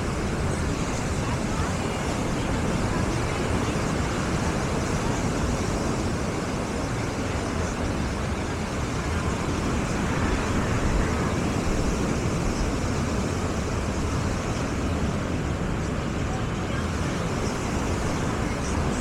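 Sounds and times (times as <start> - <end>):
surf washing: 0.0 - 19.0
wind rumbling on microphone: 0.0 - 19.0.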